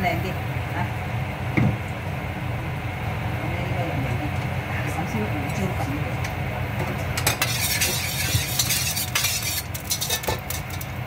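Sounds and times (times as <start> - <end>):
steady low hum: 0.0 - 11.0
food sizzling in a pan: 7.2 - 10.9
metal utensil scraping pan: 7.2 - 10.9.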